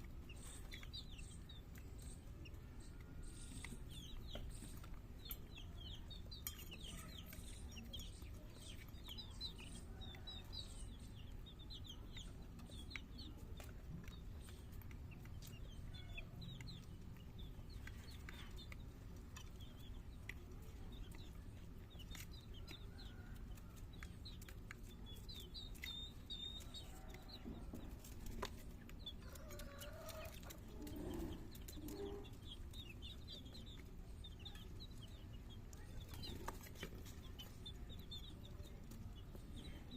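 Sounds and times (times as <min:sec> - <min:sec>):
high-pitched chirping calls: 0:00.0 - 0:27.6
chickens clucking: 0:00.0 - 0:39.9.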